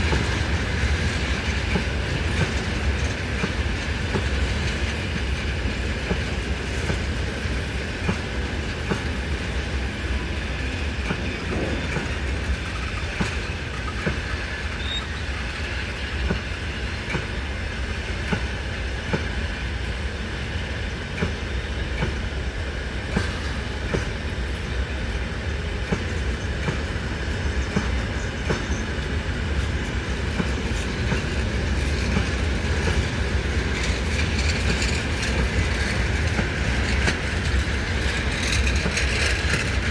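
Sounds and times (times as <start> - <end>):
wheels clicking over rail joints: 0.0 - 17.6, 23.1 - 39.9
freight train rumbling: 0.0 - 39.9
faint wheel squeal: 12.8 - 15.8.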